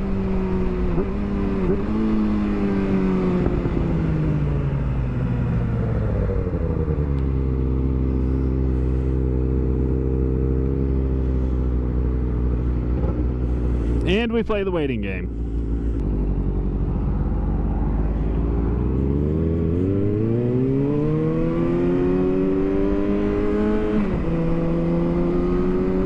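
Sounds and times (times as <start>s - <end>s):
motorcycle engine running: 0.0s - 20.8s.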